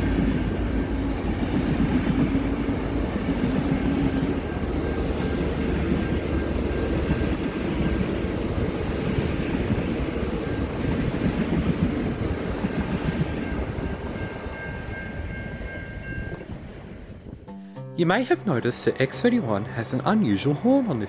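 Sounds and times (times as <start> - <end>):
train wheels clattering on track: 0.0 - 14.2.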